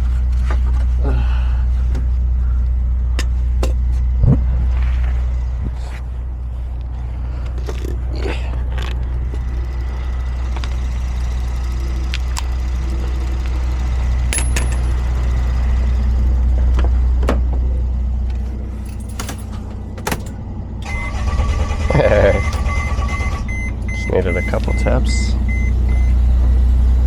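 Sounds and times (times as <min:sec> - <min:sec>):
vehicle engine idling: 0:00.0 - 0:27.0
metallic clinks and taps: 0:12.1 - 0:15.6.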